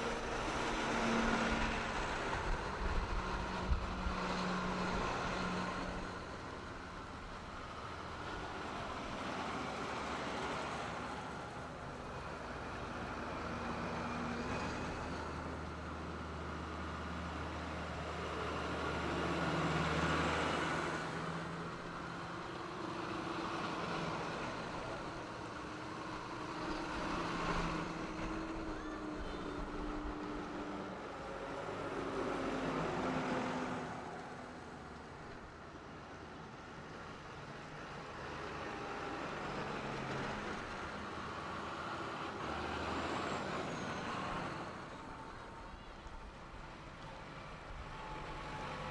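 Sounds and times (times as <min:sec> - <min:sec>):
tractor engines passing: 0:00.0 - 0:48.9.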